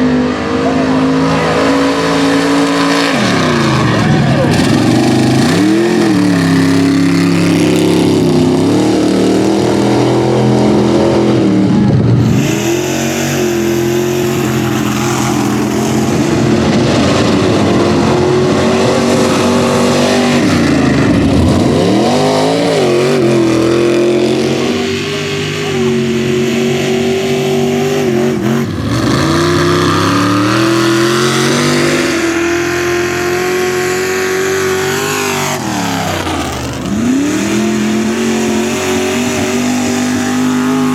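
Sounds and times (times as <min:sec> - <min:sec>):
truck engine revving under load: 0:00.0 - 0:40.9.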